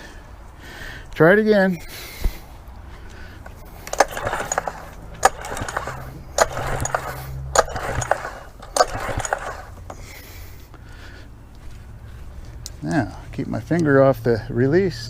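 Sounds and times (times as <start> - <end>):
pull-start cord clack and whirr: 3.5 - 10.2.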